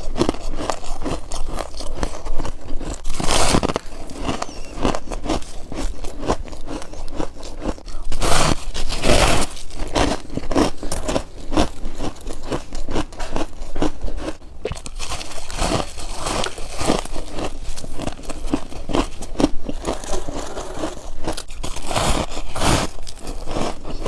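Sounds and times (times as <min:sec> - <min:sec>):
frost being chewed crunching: 0:00.0 - 0:24.0.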